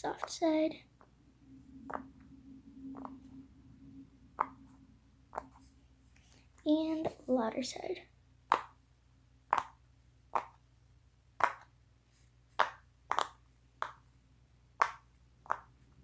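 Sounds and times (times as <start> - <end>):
fidget toy bubbles popping: 1.8 - 2.2, 8.5 - 8.8, 9.5 - 10.6, 12.6 - 14.0.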